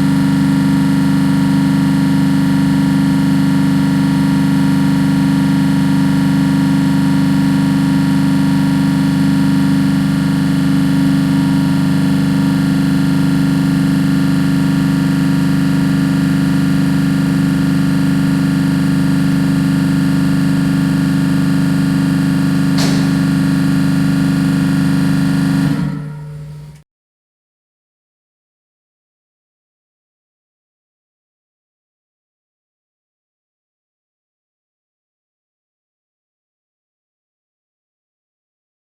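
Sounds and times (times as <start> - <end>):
refrigeration compressor humming: 0.0 - 26.8.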